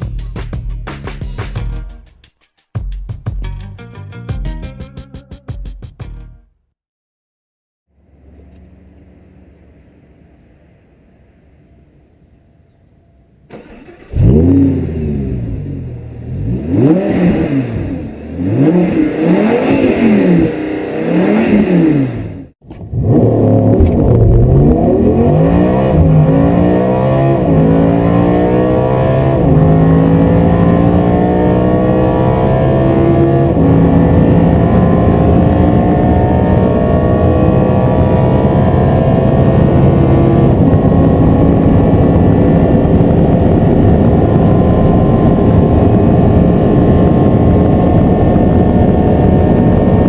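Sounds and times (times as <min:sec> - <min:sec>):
car accelerating through gears: 0:13.5 - 0:50.0
car engine revving: 0:13.5 - 0:50.0.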